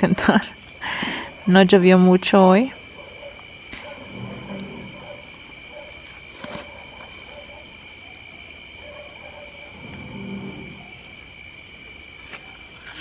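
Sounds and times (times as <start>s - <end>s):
night insect chorus trilling: 0.0s - 13.0s
low hooting call: 2.8s - 11.2s.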